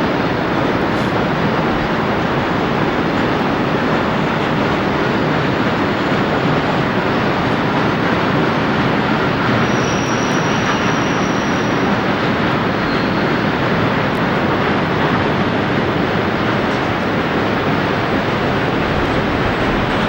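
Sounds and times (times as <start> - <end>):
diesel train rumbling past: 0.0 - 20.0
high-pitched wheel squeal: 6.4 - 13.8.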